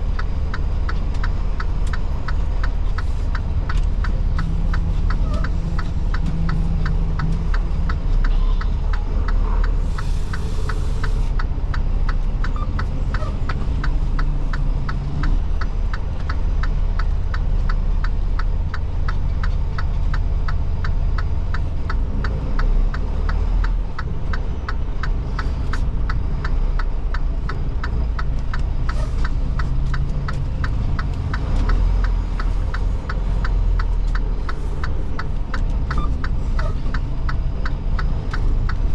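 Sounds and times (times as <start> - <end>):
diesel truck engine droning: 0.0 - 38.9
turn signal clicking: 0.1 - 38.9.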